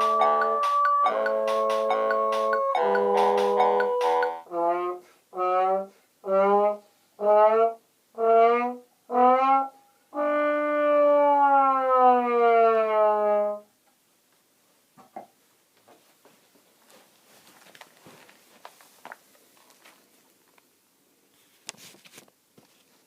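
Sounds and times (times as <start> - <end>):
brass horn blasts: 0.0 - 11.0.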